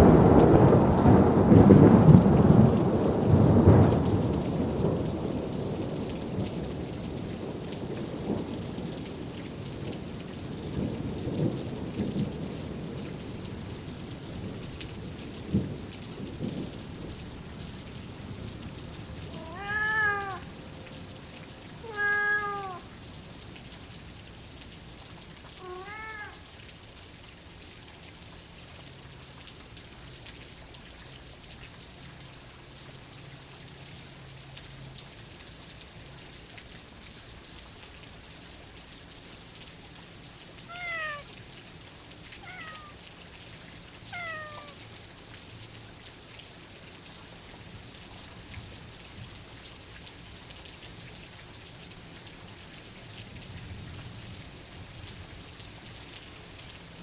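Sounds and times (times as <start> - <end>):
rumbling thunder: 0.0 - 13.4
steady rain: 0.0 - 57.0
cat meowing: 19.3 - 20.5, 21.8 - 22.9, 25.6 - 26.4, 40.7 - 41.4, 42.4 - 43.0, 44.1 - 44.8.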